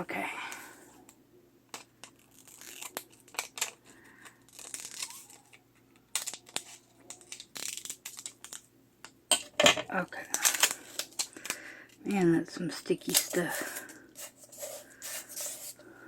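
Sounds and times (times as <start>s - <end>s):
paper crinkling: 1.8s - 8.7s, 13.0s - 16.0s.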